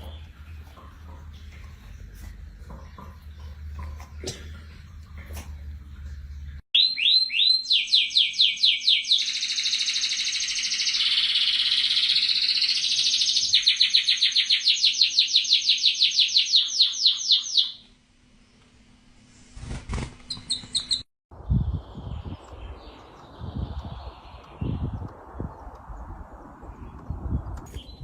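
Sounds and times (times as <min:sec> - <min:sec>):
bird singing whistled trill: 0:06.8 - 0:17.8.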